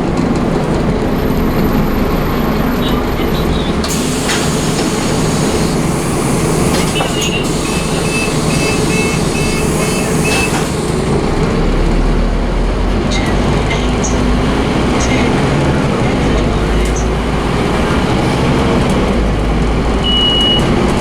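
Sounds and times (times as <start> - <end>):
bus engine drone: 0.0 - 21.0
short high beeps: 20.0 - 20.6.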